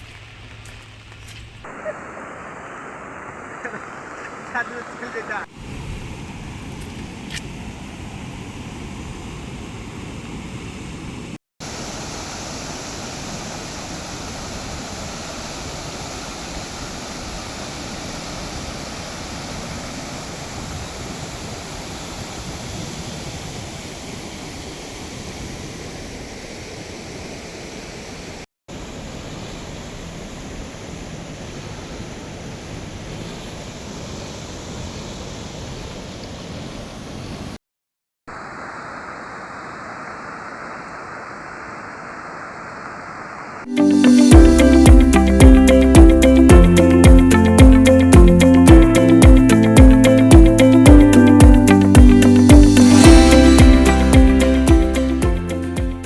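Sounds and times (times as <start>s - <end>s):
floodwater rushing: 1.7s - 8.8s, 11.6s - 26.0s, 38.3s - 56.0s.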